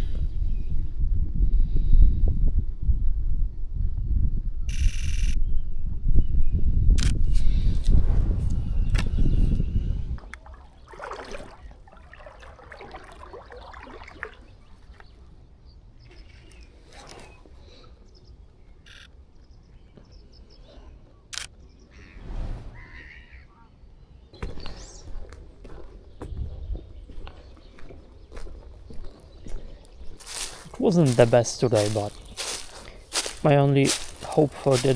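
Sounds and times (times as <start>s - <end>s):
birds calling: 8.7s - 34.9s
harsh bird calls: 8.7s - 34.9s.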